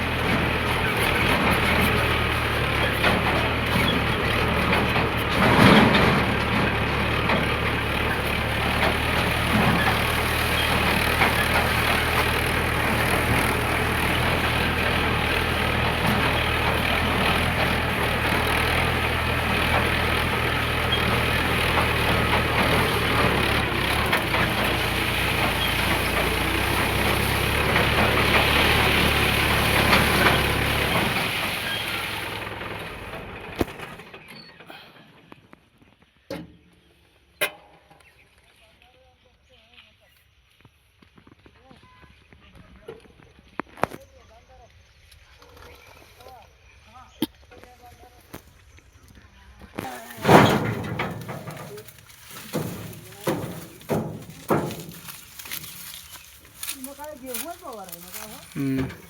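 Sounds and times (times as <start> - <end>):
tractor diesel engine running: 0.0 - 35.4, 48.4 - 59.0.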